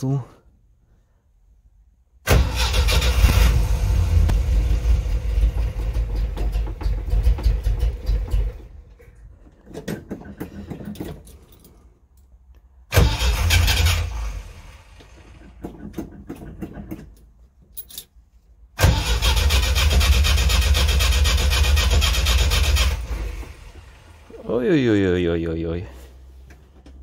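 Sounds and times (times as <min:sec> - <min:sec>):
engine cranking without starting: 0:02.3 - 0:11.6, 0:12.9 - 0:17.2, 0:18.8 - 0:24.3.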